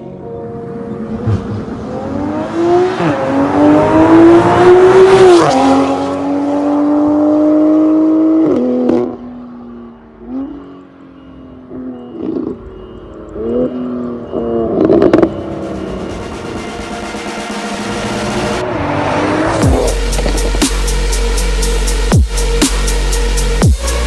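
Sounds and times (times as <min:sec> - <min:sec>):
car engine accelerating: 0:00.1 - 0:24.0
engine rev blip: 0:09.8 - 0:23.2.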